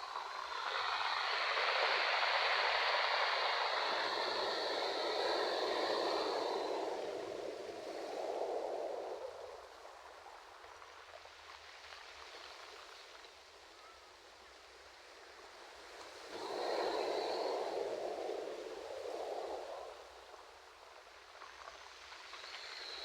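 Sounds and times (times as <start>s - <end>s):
ocean waves on a shore: 0.0s - 9.9s, 15.5s - 20.6s.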